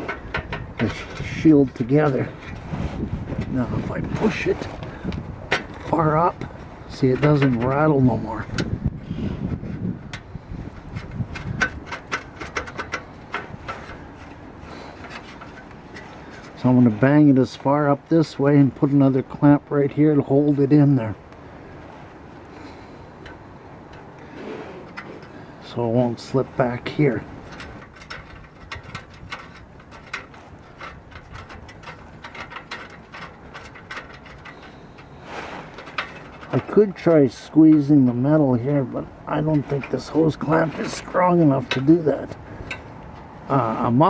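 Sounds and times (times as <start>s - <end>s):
heat shield rattling: 0.0s - 16.8s, 22.7s - 44.0s
light metallic clicks and taps: 11.0s - 14.0s, 26.4s - 35.1s.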